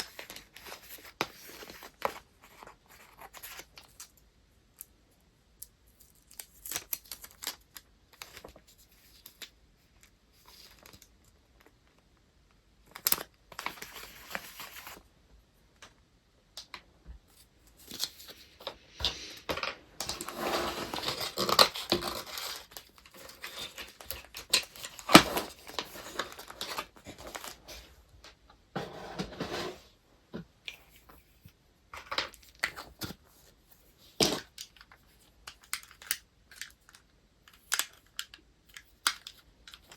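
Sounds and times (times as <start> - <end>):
paper crinkling and rustling: 10.3 - 11.7, 17.3 - 28.0.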